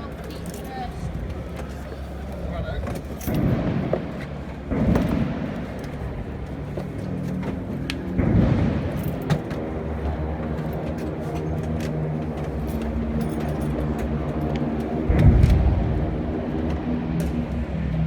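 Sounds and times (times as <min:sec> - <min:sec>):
engine droning: 0:00.0 - 0:18.0
low rumble: 0:14.5 - 0:18.0.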